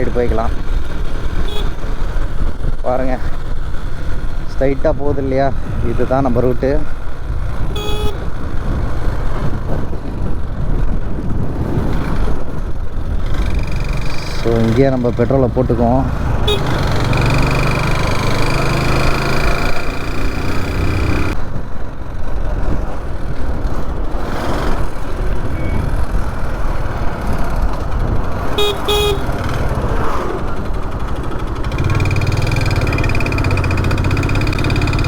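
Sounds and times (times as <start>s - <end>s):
motorcycle engine running: 0.0s - 35.0s
vehicle horn toots: 1.4s - 1.8s, 7.7s - 8.3s, 16.3s - 17.6s, 28.5s - 29.4s.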